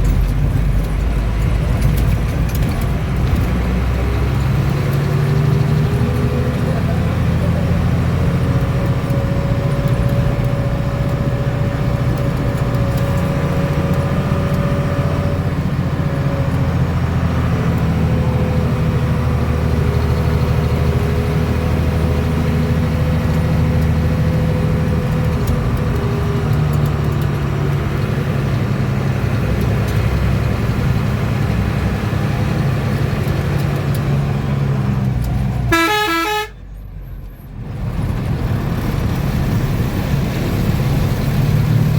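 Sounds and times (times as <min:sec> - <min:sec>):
bus engine droning: 0:00.0 - 0:41.9
road noise: 0:00.0 - 0:41.9
horn short pulses: 0:35.7 - 0:36.6.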